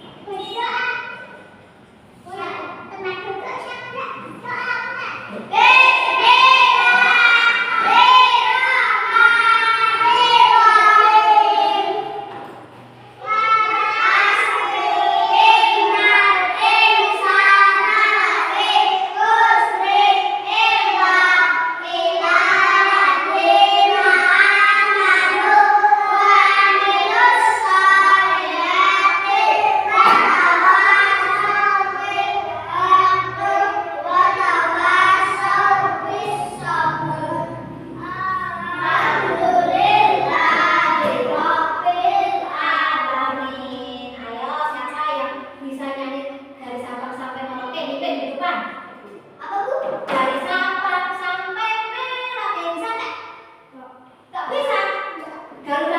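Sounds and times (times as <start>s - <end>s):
children singing: 4.4s - 44.2s.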